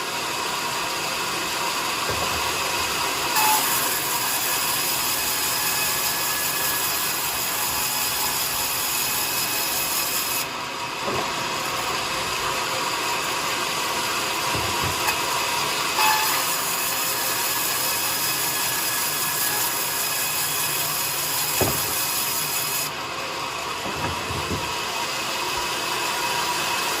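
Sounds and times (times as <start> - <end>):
sawmill saw cutting wood: 0.0 - 27.0
sharp knock: 21.6 - 22.0.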